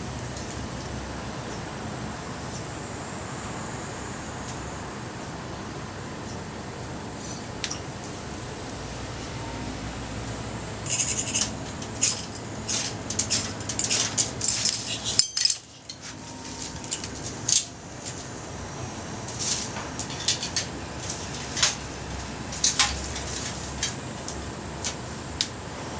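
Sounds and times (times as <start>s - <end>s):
metallic scrapes and clinks: 10.8s - 17.7s.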